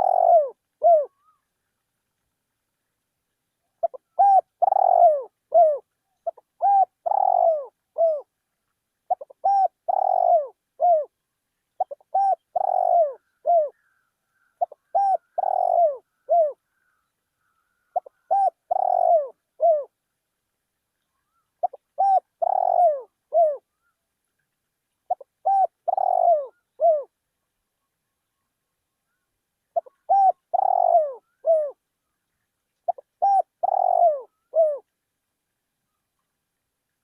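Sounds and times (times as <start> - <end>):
dove cooing: 0.0 - 1.4, 3.8 - 8.3, 9.1 - 11.1, 11.8 - 17.0, 17.8 - 20.0, 21.6 - 23.8, 25.1 - 27.1, 29.7 - 31.8, 32.8 - 34.9.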